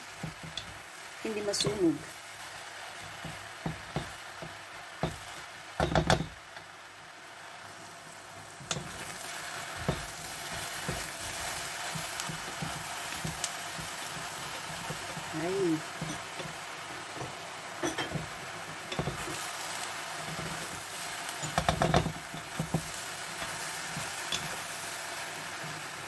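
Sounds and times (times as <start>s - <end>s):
vegetables sizzling in oil: 0.0s - 26.0s
wooden spatula scraping a pan: 8.6s - 24.8s.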